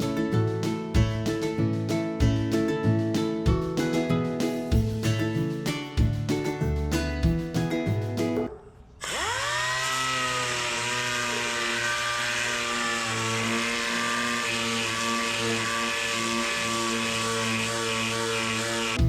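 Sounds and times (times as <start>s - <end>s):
power sander motor whining: 9.0s - 19.0s.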